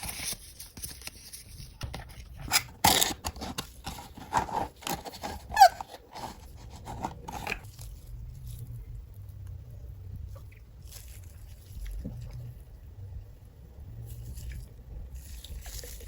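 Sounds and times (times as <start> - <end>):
packaging scrapes and rustles: 0.0 - 8.6.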